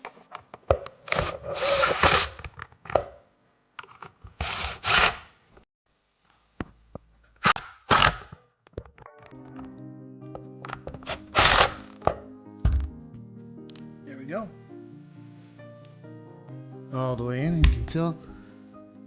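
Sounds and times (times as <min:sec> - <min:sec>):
bolts scraping and grinding into wood: 0:00.0 - 0:03.1, 0:03.8 - 0:05.2.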